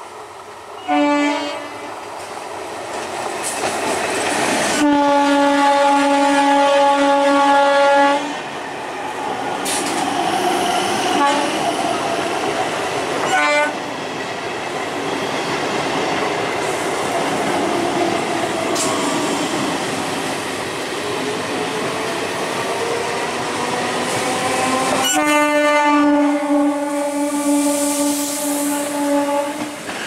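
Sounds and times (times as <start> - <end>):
trains rumbling on rails: 0.0 - 30.0
train horn: 0.8 - 1.9, 4.8 - 8.4, 11.1 - 11.7, 13.2 - 13.8, 24.6 - 29.8.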